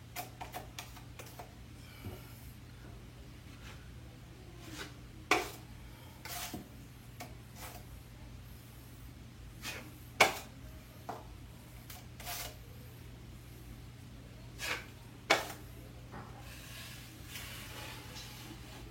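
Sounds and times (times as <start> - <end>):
drywall knife scraping wall: 4.6 - 5.6, 6.2 - 7.8, 11.8 - 12.6, 14.6 - 15.6.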